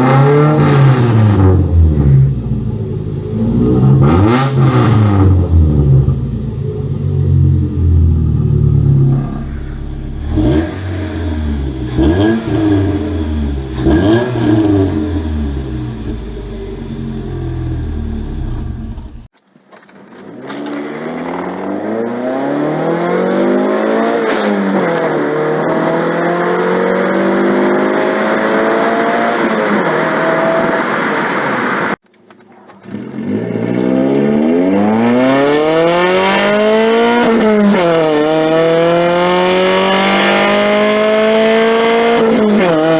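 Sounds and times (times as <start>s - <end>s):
car accelerating hard with gear changes: 0.0s - 19.3s, 19.9s - 32.0s, 32.6s - 42.9s
car exhaust revving: 0.0s - 19.3s, 20.5s - 32.0s, 32.8s - 42.9s.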